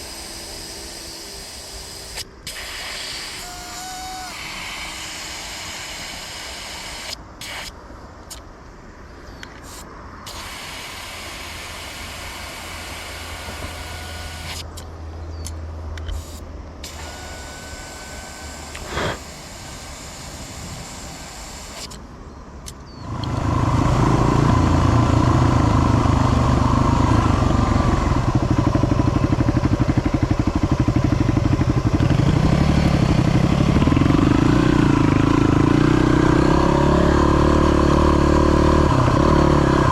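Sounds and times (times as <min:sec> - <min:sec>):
motorcycle engine running: 0:23.0 - 0:39.9.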